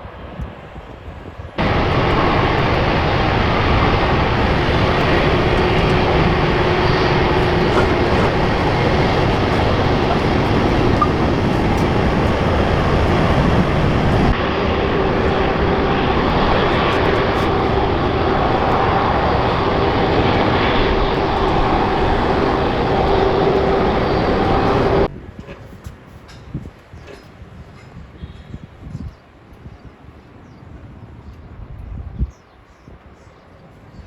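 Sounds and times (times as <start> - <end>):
jet engines running loud: 0.1 - 25.1.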